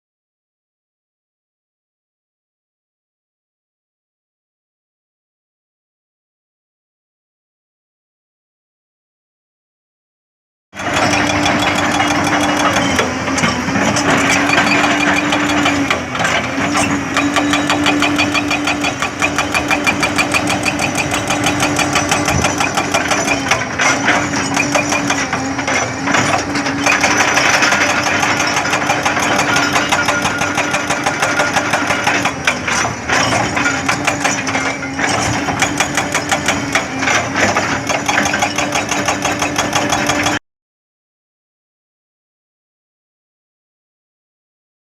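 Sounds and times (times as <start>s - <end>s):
excavator diesel engine running: 10.8s - 40.4s.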